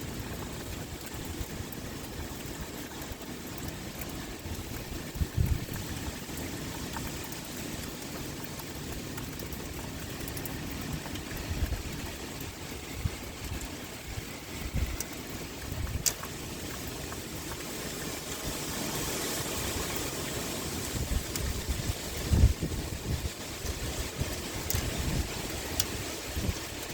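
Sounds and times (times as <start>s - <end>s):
heavy rain pouring: 0.0s - 26.9s
wind gusting: 11.0s - 16.2s, 18.2s - 26.9s.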